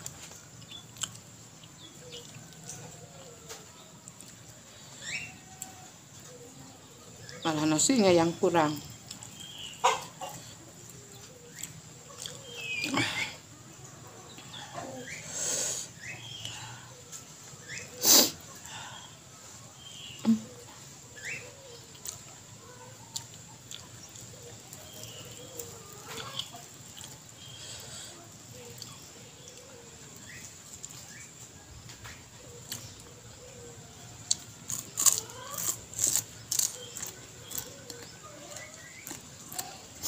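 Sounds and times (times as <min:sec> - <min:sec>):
quiet chewing: 0:00.0 - 0:07.9, 0:08.8 - 0:15.3, 0:19.4 - 0:40.0
crisp crunching of greens: 0:34.2 - 0:40.0.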